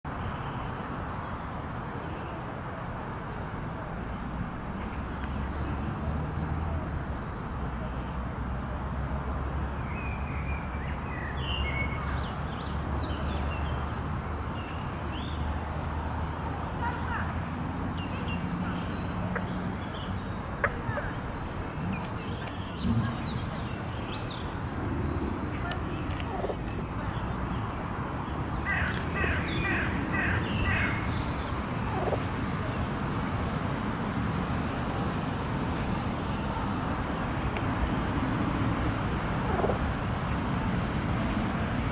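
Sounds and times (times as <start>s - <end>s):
small birds chirping: 16.6s - 32.4s
bird calling: 26.0s - 27.4s, 28.6s - 31.3s.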